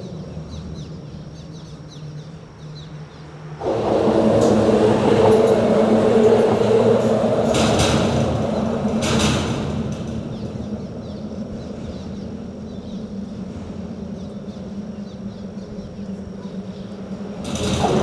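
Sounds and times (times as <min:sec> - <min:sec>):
vehicle rumbling over bridge: 0:00.0 - 0:18.0
small birds chirping: 0:10.1 - 0:17.2
short rattles: 0:17.2 - 0:18.0.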